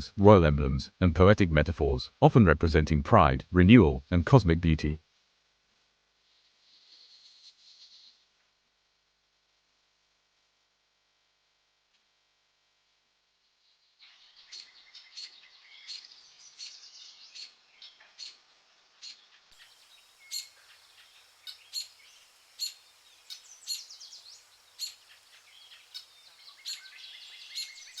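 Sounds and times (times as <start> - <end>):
small birds chirping and trilling: 14.0 - 18.4, 19.0 - 28.0.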